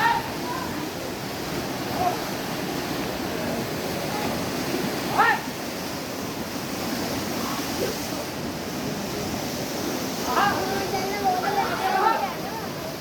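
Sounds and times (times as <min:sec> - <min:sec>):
river water rushing: 0:00.0 - 0:13.0
murmur of voices: 0:10.2 - 0:13.0.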